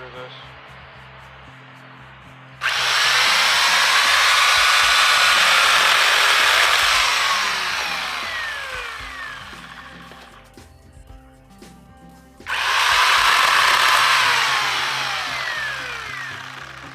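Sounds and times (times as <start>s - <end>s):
electric chainsaw running: 2.5s - 10.4s, 12.4s - 16.9s.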